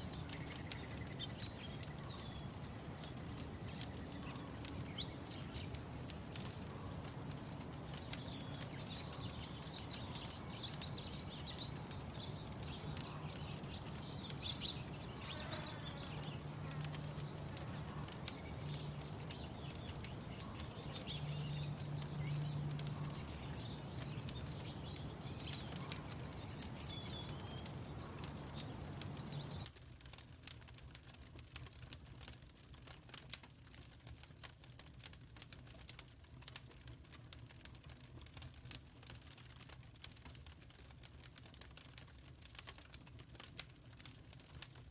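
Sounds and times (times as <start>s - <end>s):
birds chirping: 0.0s - 29.7s
sharp crackles: 0.0s - 44.9s.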